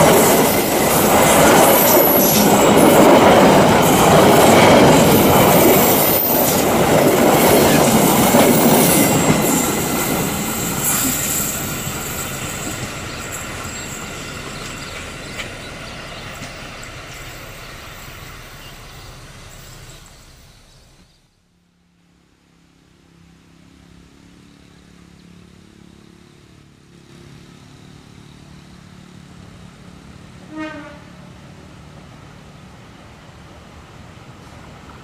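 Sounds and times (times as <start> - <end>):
diesel locomotive engine hum: 0.0 - 35.0
passing train rumble: 0.0 - 35.0
train horn blast: 30.4 - 31.4.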